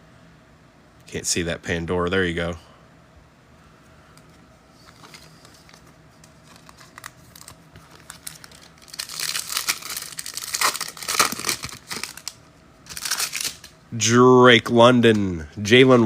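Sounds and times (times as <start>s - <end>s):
foil wrapper tearing and crinkling: 5.0s - 13.7s.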